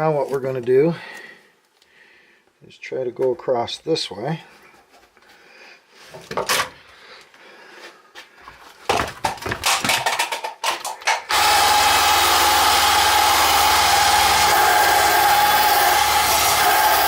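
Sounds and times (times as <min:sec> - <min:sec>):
handling clicks and clatter: 0:09.2 - 0:11.3
power tool whining: 0:11.3 - 0:17.0.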